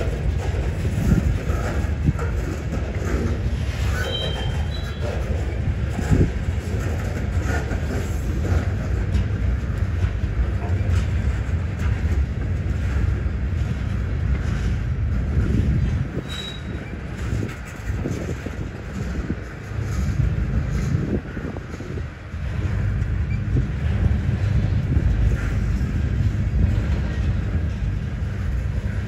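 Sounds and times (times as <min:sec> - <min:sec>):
steel wheels rumbling on rail: 0:00.0 - 0:29.0
high wheel squeal: 0:03.7 - 0:05.2, 0:16.2 - 0:17.0.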